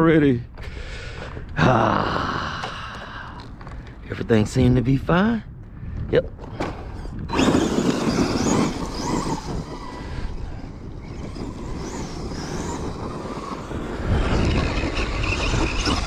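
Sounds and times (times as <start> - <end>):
electric motor whining: 6.9 - 16.0
tyres crunching on dirt: 7.3 - 13.5.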